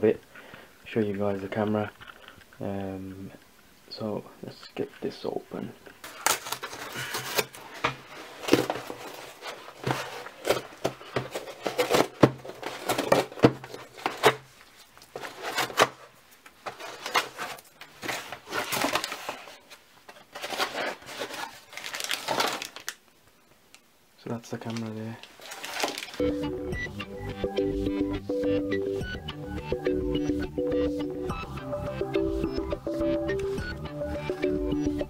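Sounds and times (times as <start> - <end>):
packaging being torn open: 6.0 - 7.6, 20.2 - 23.1, 24.7 - 26.2.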